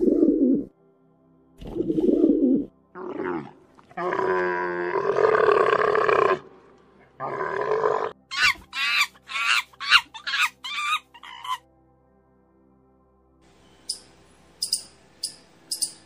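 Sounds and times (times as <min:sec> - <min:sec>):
chimpanzees calling: 0:08.3 - 0:11.6.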